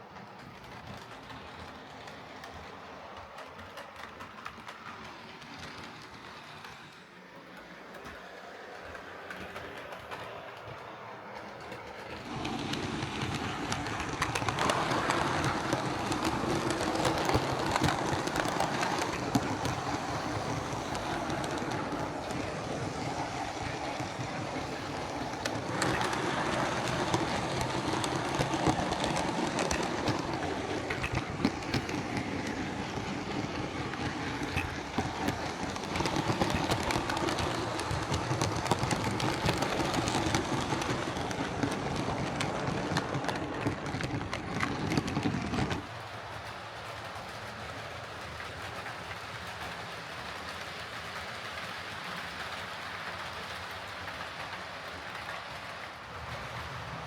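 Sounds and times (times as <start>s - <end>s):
wheel clicks over rails: 0.0s - 57.0s
model train motor whirring: 11.4s - 45.8s.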